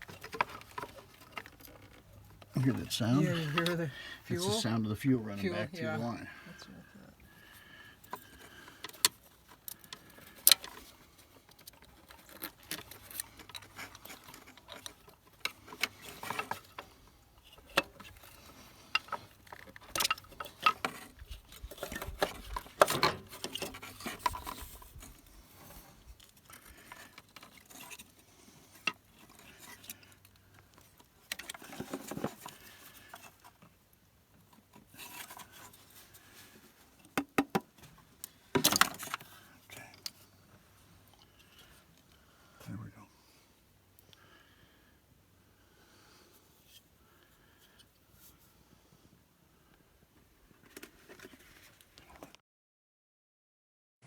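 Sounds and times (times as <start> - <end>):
hand tools and metal parts clinking: 8.0 - 33.7.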